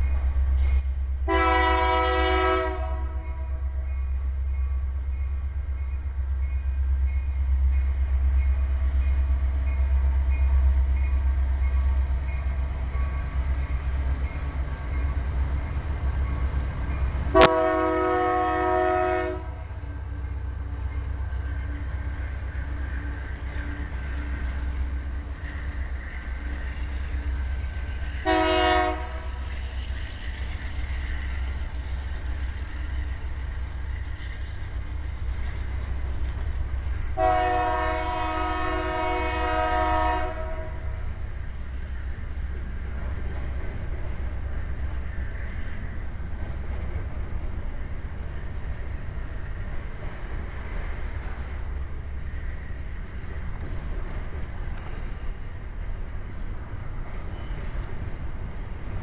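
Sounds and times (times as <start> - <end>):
freight train rumbling past: 0.0 - 59.0
locomotive horn blasts: 1.2 - 3.7, 17.3 - 19.7, 28.2 - 29.4, 37.2 - 41.0.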